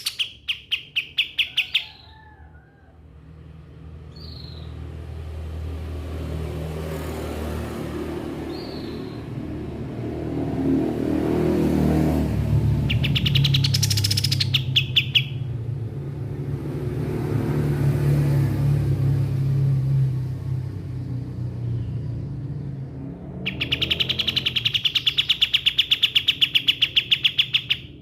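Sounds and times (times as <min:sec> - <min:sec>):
songbird buzzy trill: 0:00.0 - 0:01.8, 0:12.8 - 0:15.5, 0:23.5 - 0:28.0.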